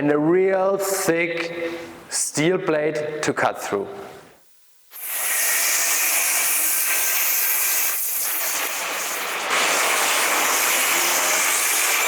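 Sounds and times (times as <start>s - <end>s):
angle grinders cutting steel: 5.0s - 12.0s.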